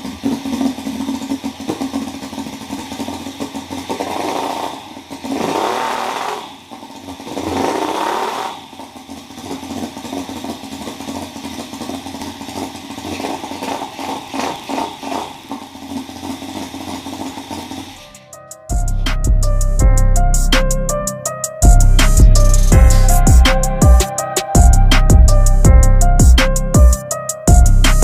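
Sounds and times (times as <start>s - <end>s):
small engine running and revving: 0.0s - 18.3s.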